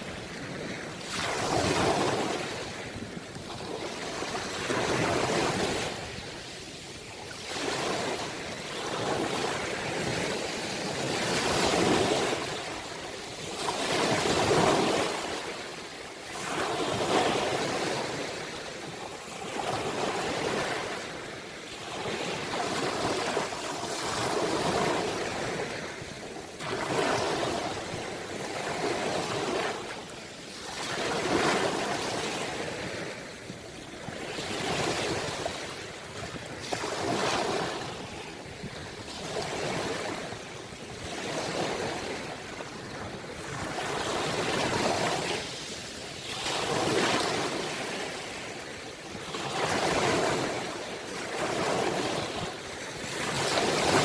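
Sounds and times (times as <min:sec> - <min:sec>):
ocean waves surging: 0:49.4 - 0:54.0.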